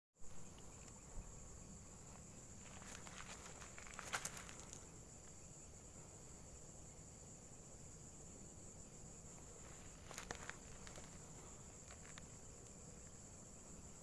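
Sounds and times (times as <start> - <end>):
insects droning: 0.2 - 14.0.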